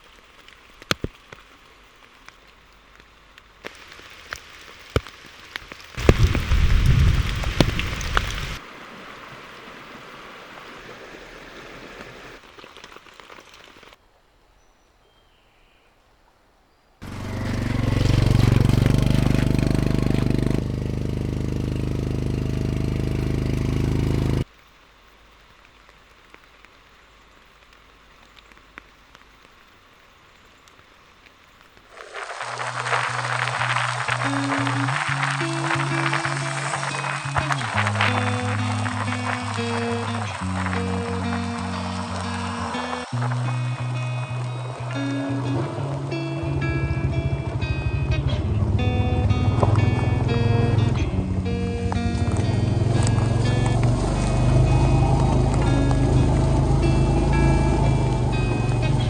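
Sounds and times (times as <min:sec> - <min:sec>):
rain falling on surfaces: 0:00.0 - 0:14.2, 0:17.0 - 0:47.1, 0:51.4 - 0:59.0
loud engine-like drone: 0:17.0 - 0:24.4, 0:33.5 - 0:59.0.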